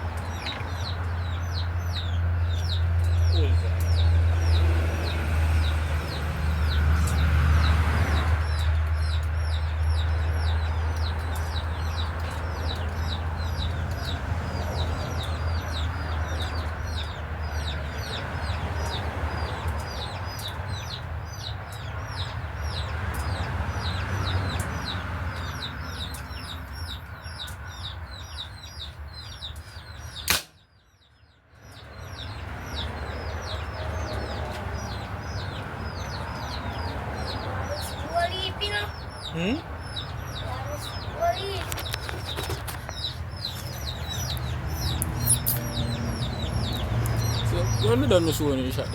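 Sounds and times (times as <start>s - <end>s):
birds chirping: 0.0s - 48.9s
sharp crack: 30.2s - 30.7s.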